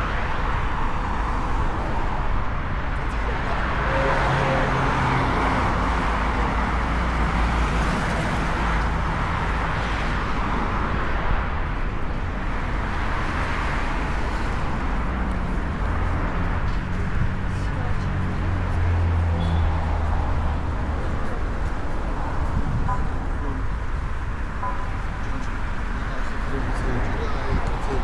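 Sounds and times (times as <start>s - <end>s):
city road traffic: 0.0s - 28.0s.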